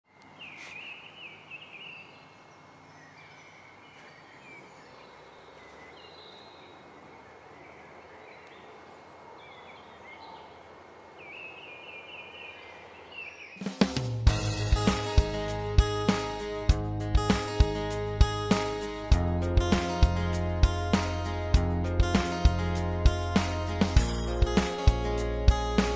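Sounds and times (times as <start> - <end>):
small birds chirping: 0.1 - 13.9
soft outdoor hush: 0.1 - 14.0.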